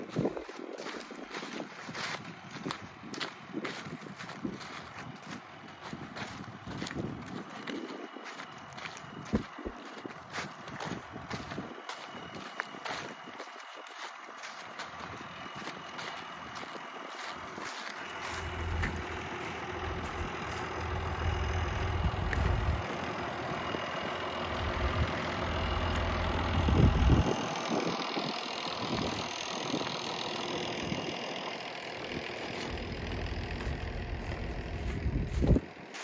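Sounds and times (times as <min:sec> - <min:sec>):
tractor engine running: 0:00.0 - 0:36.0
wind on microphone: 0:26.6 - 0:29.2.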